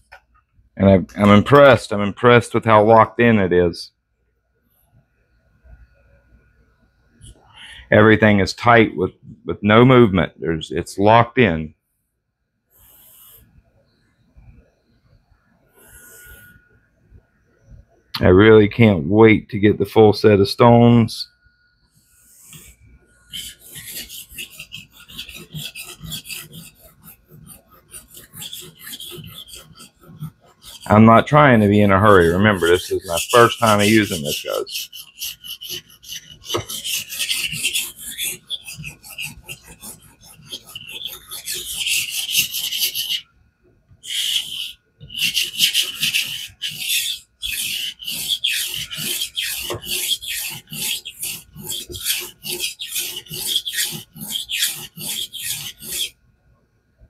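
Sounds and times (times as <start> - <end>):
knife scraping on wet whetstone: 23.3 - 43.2, 44.1 - 56.1.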